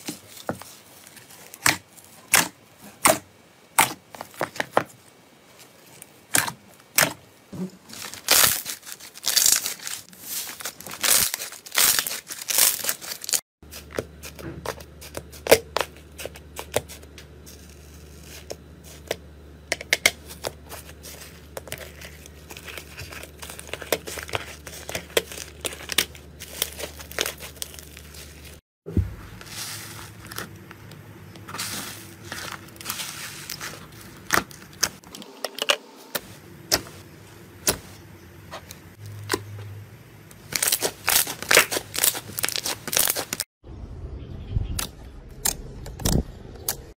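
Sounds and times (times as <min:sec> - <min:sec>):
slime squeezed crackling and popping: 0:40.5 - 0:43.4.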